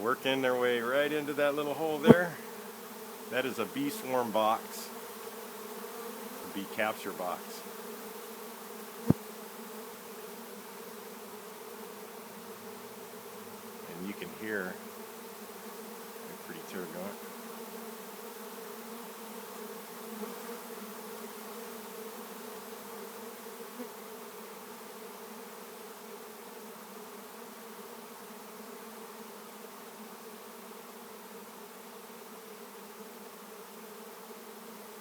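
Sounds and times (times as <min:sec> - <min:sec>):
bee swarm buzzing: 0:00.0 - 0:35.0.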